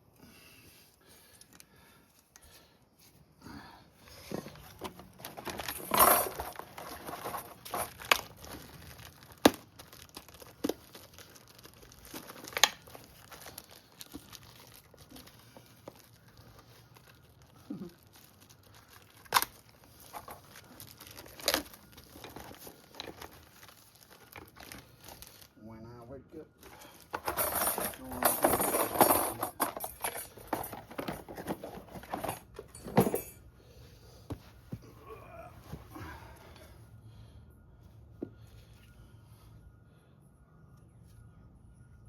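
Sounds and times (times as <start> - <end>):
rustling and crinkling: 4.0 - 25.6, 26.5 - 36.8.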